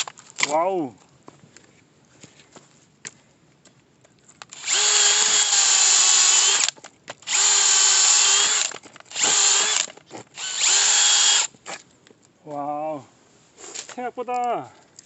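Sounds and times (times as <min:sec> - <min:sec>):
power drill driving bit into log: 0:04.5 - 0:11.5.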